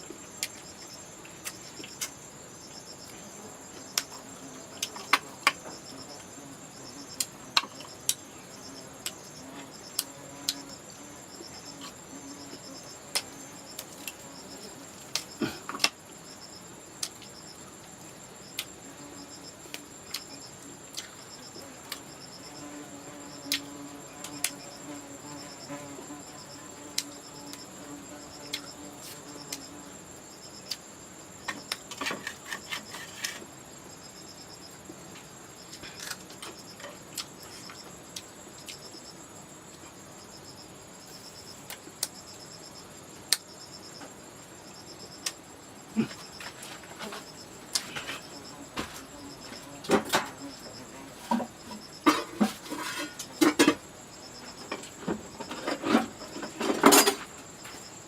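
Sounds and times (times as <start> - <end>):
high-pitched insect whine: 0.0 - 58.0
insects chirping: 0.0 - 58.0.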